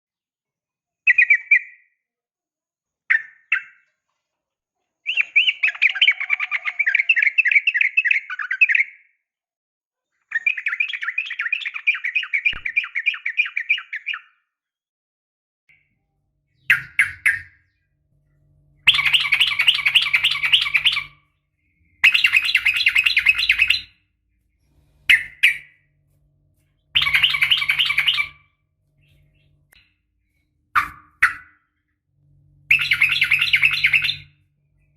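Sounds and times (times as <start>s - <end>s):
bulbul calling and chattering: 16.5s - 17.8s, 18.6s - 31.7s, 32.7s - 34.9s.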